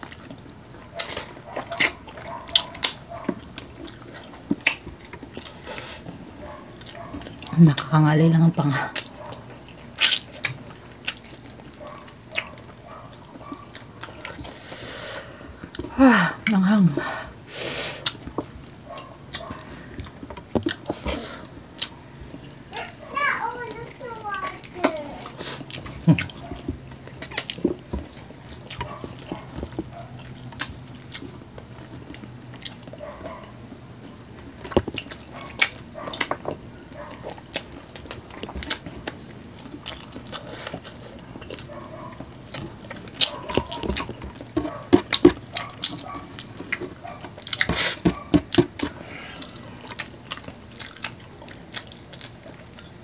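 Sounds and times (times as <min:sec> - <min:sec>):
wet chewing and sucking: 0:00.0 - 0:07.9, 0:08.6 - 0:16.0, 0:17.3 - 0:53.0.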